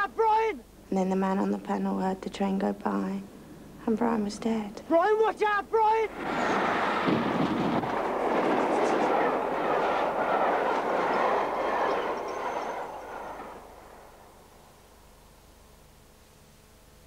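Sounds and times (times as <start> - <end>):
passenger train rushing past: 6.1 - 14.9.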